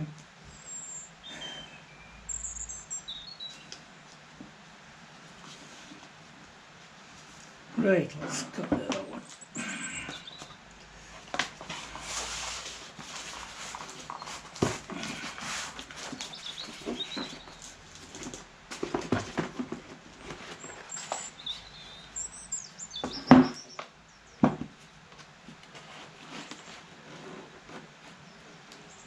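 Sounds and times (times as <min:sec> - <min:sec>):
paper scraping and rustling: 0:10.4 - 0:22.1, 0:25.6 - 0:28.4.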